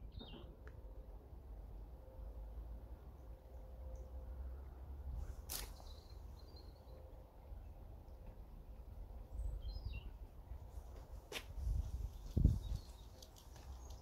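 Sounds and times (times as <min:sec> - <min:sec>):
faint songbird chirps: 0:05.6 - 0:07.8, 0:09.2 - 0:10.2, 0:12.0 - 0:14.0.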